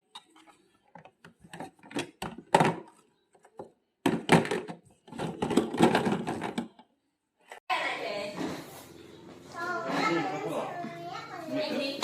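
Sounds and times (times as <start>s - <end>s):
hard objects knocking and clattering: 0.0s - 6.9s.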